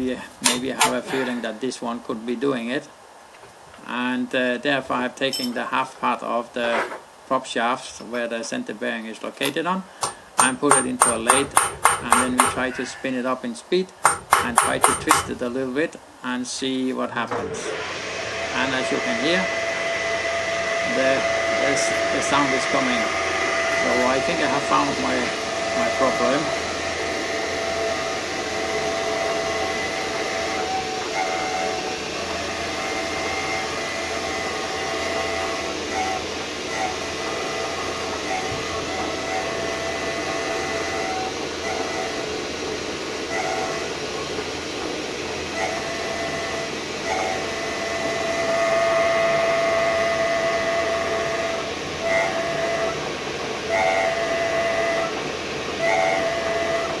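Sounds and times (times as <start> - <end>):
steady tones: 3.7 - 16.3, 18.1 - 57.0
bearing spinning in a lathe: 9.5 - 12.9, 14.0 - 15.6, 17.6 - 57.0.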